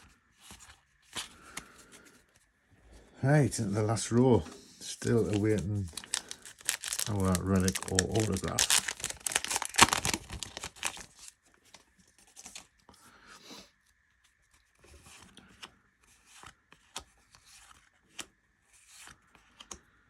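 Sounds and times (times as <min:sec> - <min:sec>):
wrapper rustling and tearing: 0:04.0 - 0:11.4, 0:12.2 - 0:12.7
light clicks of cards: 0:14.9 - 0:19.9.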